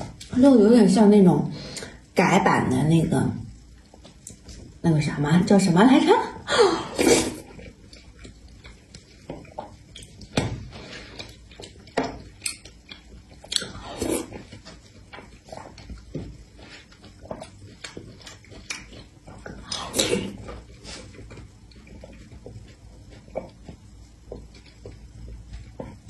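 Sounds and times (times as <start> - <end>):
person chewing and eating: 3.5 - 4.8, 6.5 - 26.0.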